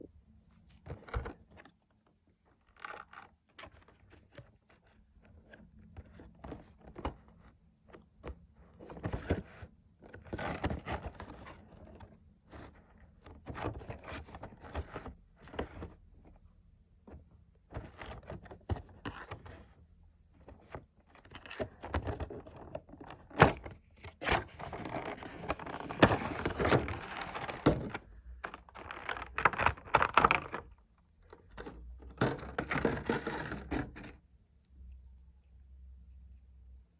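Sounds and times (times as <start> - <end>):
cardboard and plastic packaging rustling: 20.4 - 34.2.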